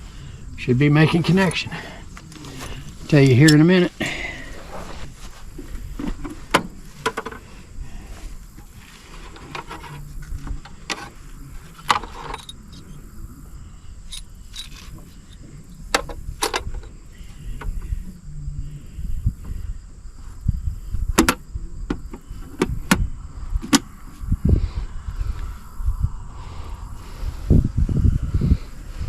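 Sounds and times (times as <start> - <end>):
low steady rumble: 0.0 - 29.0
metallic clicks and clinks: 12.1 - 12.8.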